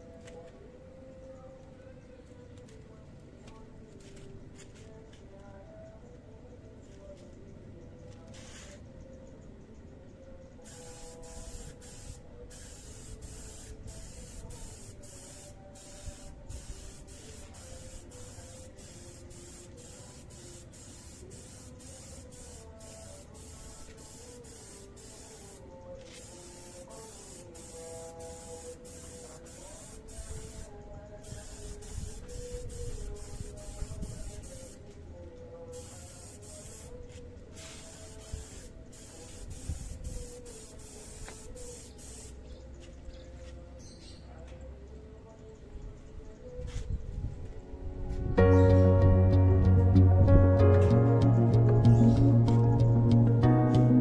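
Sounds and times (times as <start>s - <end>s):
spray gun hissing: 10.7s - 25.6s, 26.2s - 34.8s, 35.8s - 36.9s, 37.6s - 42.3s.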